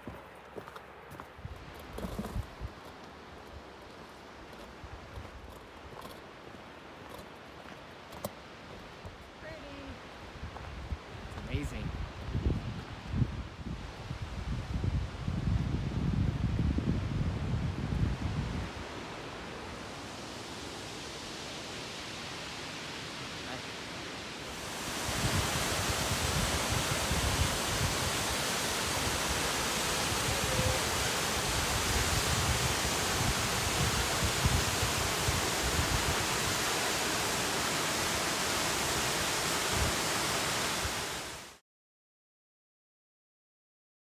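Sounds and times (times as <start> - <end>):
wind buffeting microphone: 10.4 - 18.9, 24.5 - 41.4
waterfall rushing: 19.0 - 41.6.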